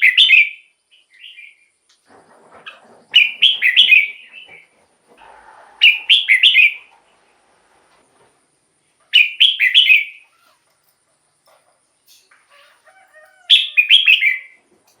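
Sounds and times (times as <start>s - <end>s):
bird singing: 0.0s - 1.8s, 2.7s - 7.3s, 9.1s - 10.7s, 11.5s - 14.6s.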